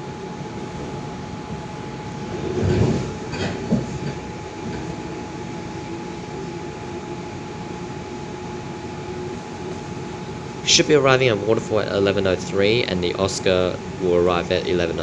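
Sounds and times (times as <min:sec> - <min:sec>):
thin steady whine: 0:00.0 - 0:15.0.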